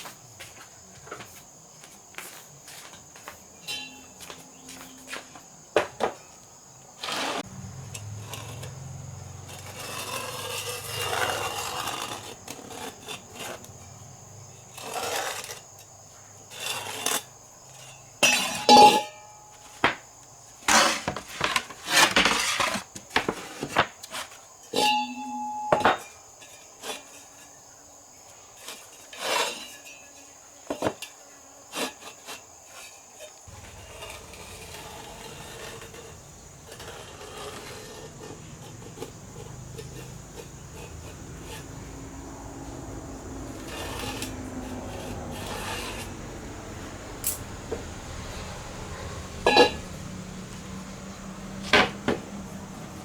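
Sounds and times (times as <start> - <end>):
clinks knocks and scrapes: 2.9 - 6.4, 14.8 - 27.6, 28.5 - 42.8, 43.5 - 46.2, 49.5 - 49.9
brief steady tone: 24.8 - 26.0.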